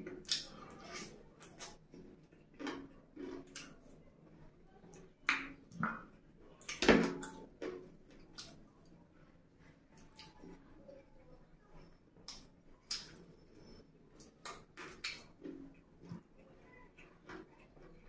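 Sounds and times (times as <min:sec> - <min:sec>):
man chewing and lip smacking: 0:11.8 - 0:16.4.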